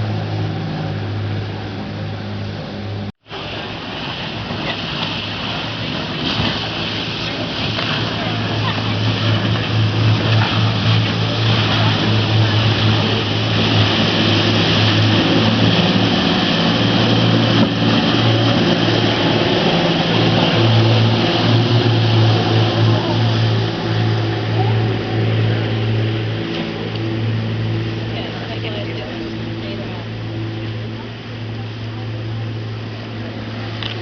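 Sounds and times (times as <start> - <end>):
boat engine humming: 0.0 - 34.0
rush of wind and water: 0.0 - 34.0.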